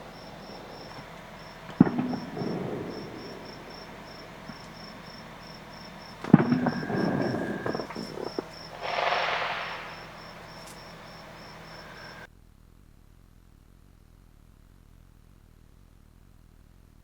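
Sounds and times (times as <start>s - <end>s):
crackling pops: 0.0s - 12.3s
crickets chirping: 0.0s - 12.3s
hissing whoosh: 0.0s - 12.3s
sharp bang: 0.0s - 12.3s.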